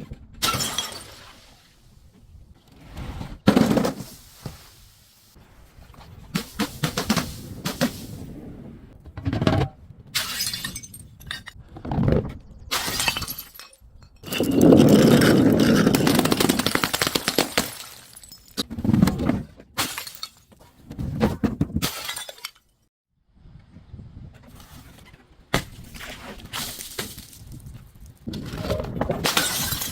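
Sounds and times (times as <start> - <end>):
glass breaking and crunching: 0.4 - 1.3, 10.2 - 11.6, 12.7 - 18.6, 19.8 - 20.5, 21.8 - 22.7, 29.2 - 29.9.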